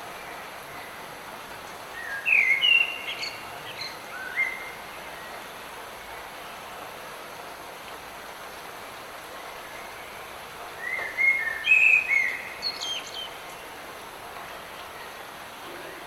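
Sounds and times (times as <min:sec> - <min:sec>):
light rain hiss: 0:00.0 - 0:16.0
songbird whistling: 0:10.8 - 0:13.4.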